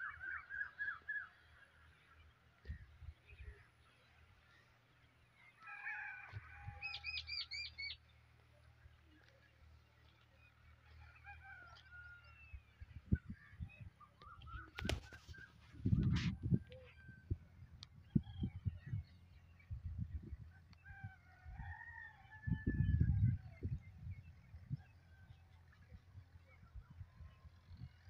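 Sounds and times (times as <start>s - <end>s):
wild birds calling: 0.0s - 8.4s.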